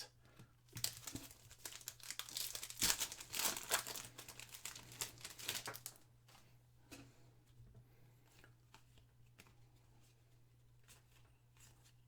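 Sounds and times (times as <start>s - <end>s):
plastic wrapper crinkling and tearing: 0.7s - 6.0s.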